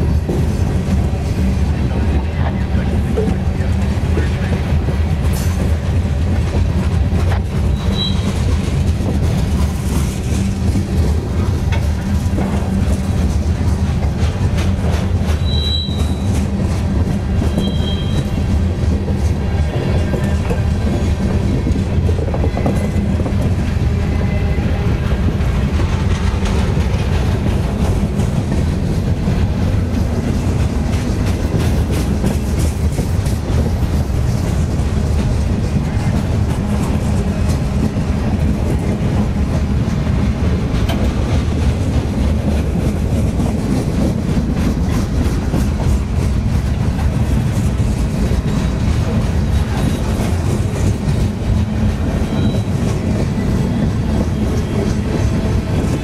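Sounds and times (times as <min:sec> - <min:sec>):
train wheels rumbling on rail: 0:00.0 - 0:56.0
high wheel squeals: 0:07.6 - 0:08.5, 0:15.4 - 0:16.4, 0:17.5 - 0:18.4, 0:52.1 - 0:52.8.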